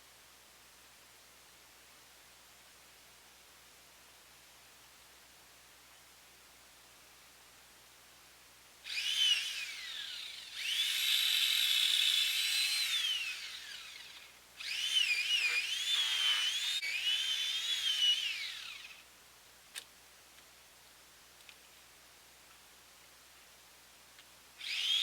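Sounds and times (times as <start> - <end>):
chainsaw whining: 8.9 - 19.0.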